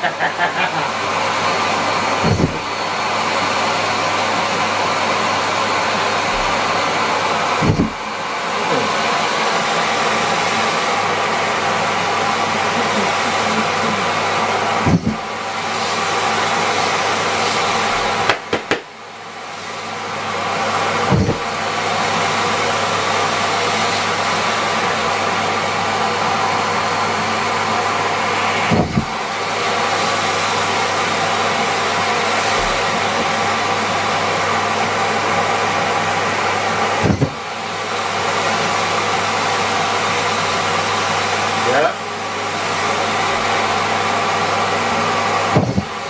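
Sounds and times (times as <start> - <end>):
vacuum cleaner running: 0.0 - 46.0
knock in vacuum hose: 2.2 - 2.6, 7.6 - 8.0, 18.2 - 18.9, 21.1 - 21.5, 28.7 - 29.2, 37.0 - 37.4, 45.5 - 46.0.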